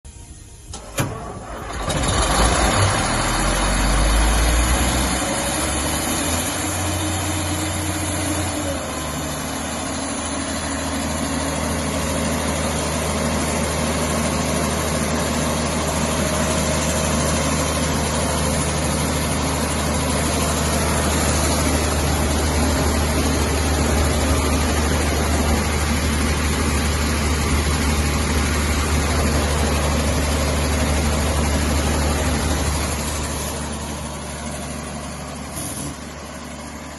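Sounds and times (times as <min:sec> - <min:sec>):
compressor engine idling: 0:00.1 - 0:36.9.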